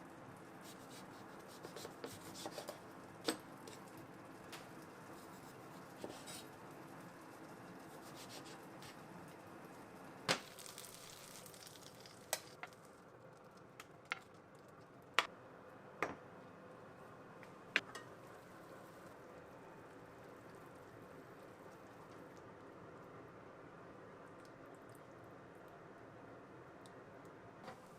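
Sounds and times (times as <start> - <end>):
food frying in a pan: 2.2 - 14.2.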